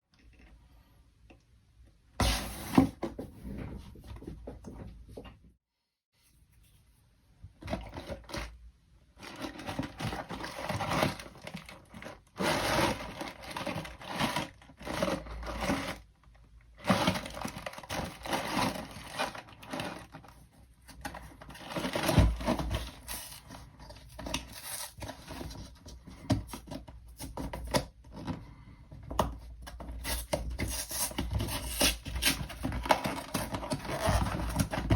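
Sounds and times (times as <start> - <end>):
packaging tearing and crinkling: 9.2 - 16.1, 16.8 - 20.3, 24.1 - 25.6, 30.0 - 34.9.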